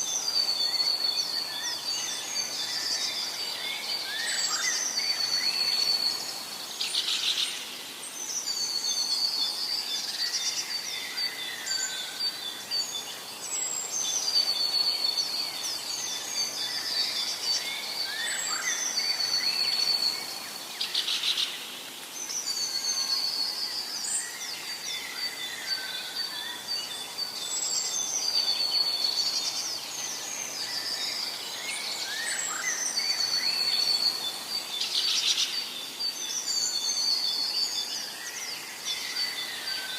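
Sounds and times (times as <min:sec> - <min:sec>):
faint background hiss: 0:00.0 - 0:39.9
songbirds singing: 0:00.0 - 0:39.9.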